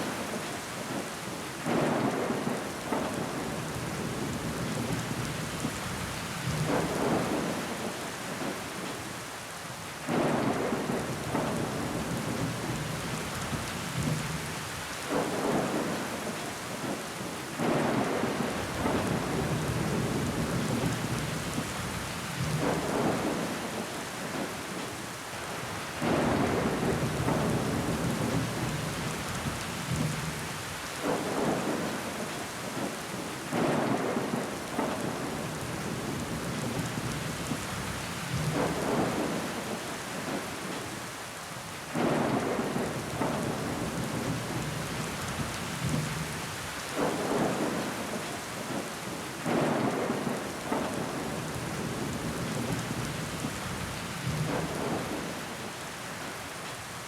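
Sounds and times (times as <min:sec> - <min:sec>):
rain pattering on window glass: 0:25.9 - 0:41.0, 0:41.9 - 0:55.8.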